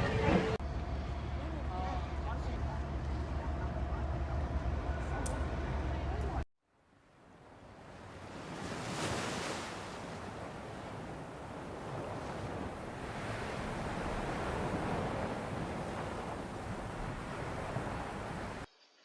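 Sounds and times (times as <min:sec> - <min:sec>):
wind on open water: 0:05.0 - 0:18.7
waves rushing: 0:07.1 - 0:18.7.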